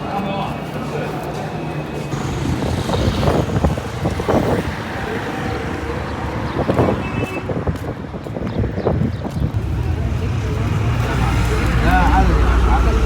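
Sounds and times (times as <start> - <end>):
faint street sounds: 0.0 - 13.0
low rumble of vehicles: 2.1 - 7.5, 9.5 - 13.0.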